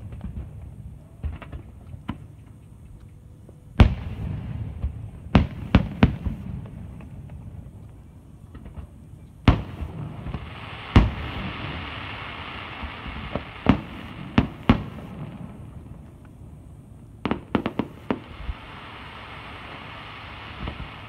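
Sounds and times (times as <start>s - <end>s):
firework crackles: 0.0s - 2.9s, 3.8s - 21.0s.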